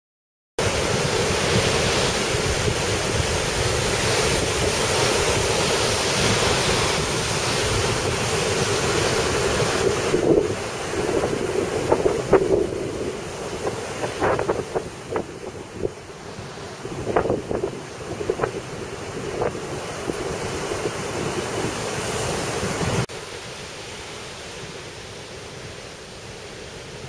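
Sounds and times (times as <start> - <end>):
wind buffeting microphone: 0.6 - 23.1
surf breaking on beach: 0.6 - 27.0.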